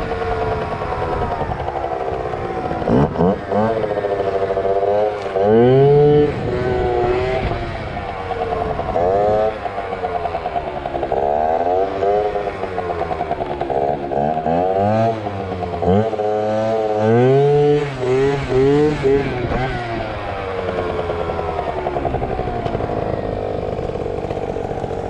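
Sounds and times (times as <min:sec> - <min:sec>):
scooter engine revving: 0:00.0 - 0:25.0.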